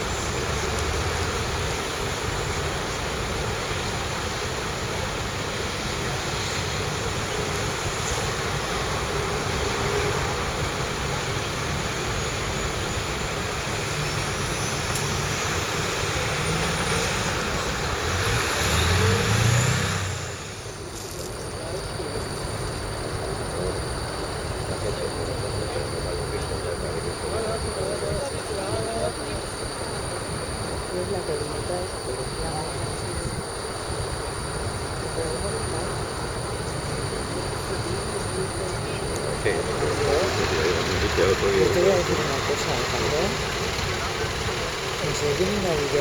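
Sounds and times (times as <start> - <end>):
train rumbling past: 0.0 - 46.0
faint wheel squeals: 22.3 - 46.0.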